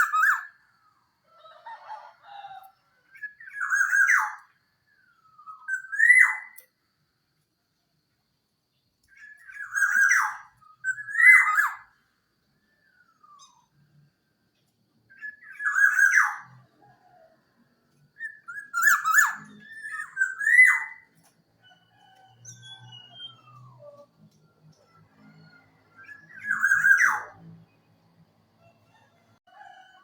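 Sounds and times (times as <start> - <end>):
bird whistling song: 0.0 - 0.7, 3.1 - 6.7, 9.0 - 12.0, 12.8 - 13.8, 15.1 - 17.2, 18.2 - 27.8.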